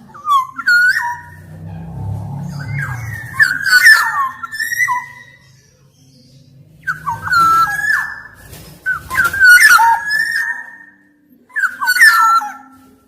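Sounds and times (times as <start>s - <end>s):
bird singing fluty whistles: 2.4s - 5.7s, 6.8s - 12.8s.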